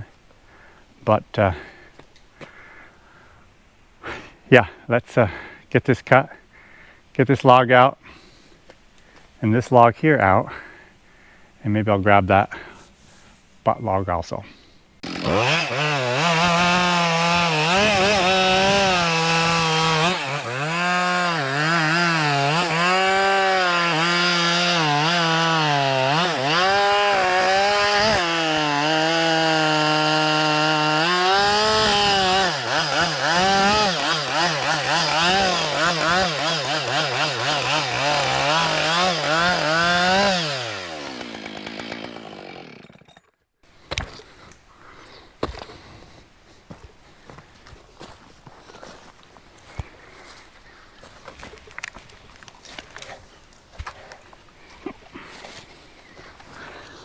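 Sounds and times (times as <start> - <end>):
chainsaw cutting a log: 15.0 - 43.3.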